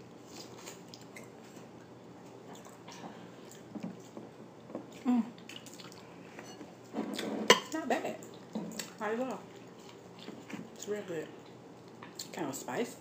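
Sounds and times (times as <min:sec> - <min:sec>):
wet chewing: 0:00.4 - 0:06.1.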